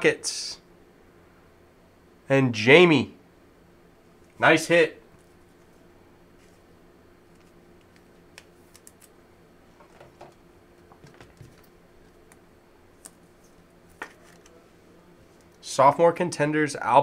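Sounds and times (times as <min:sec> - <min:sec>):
low electrical hum: 0:00.0 - 0:17.0
trading cards being handled: 0:07.3 - 0:09.2, 0:09.8 - 0:15.6.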